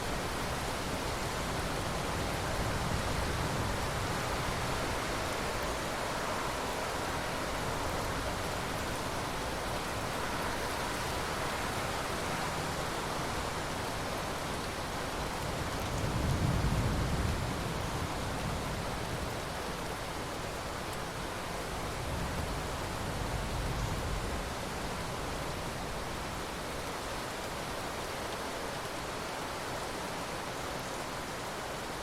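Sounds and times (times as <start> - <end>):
steady rain: 0.0 - 32.0
low rumble of thunder: 15.6 - 19.4.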